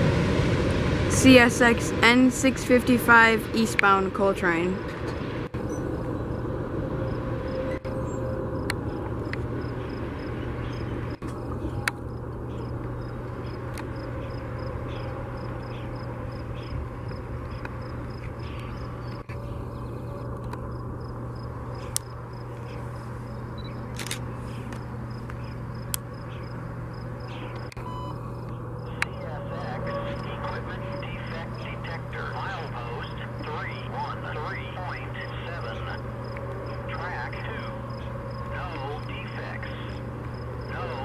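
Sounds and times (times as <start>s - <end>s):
freight train cars rolling past: 0.0s - 18.2s
constant low hum: 0.0s - 41.0s
sharp clicks: 23.6s - 26.1s.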